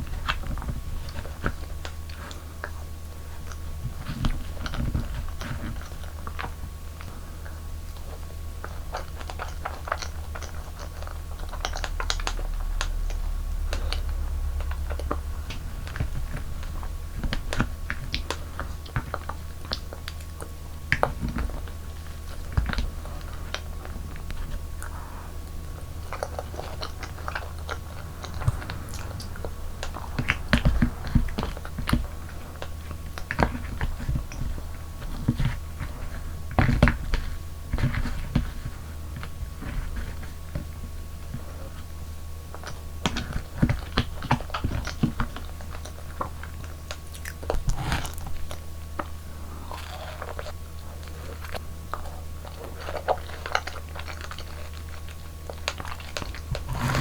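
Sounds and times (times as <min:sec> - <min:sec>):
chewing soft food: 0:00.0 - 0:57.0.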